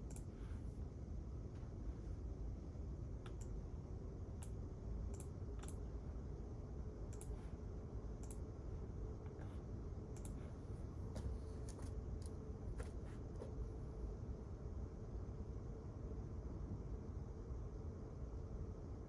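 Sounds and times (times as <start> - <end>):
light irregular clicks: 0.0 - 0.3, 3.2 - 3.6, 4.4 - 5.8, 7.1 - 7.4, 8.2 - 8.4, 10.2 - 10.4
ventilation hum: 0.0 - 19.0.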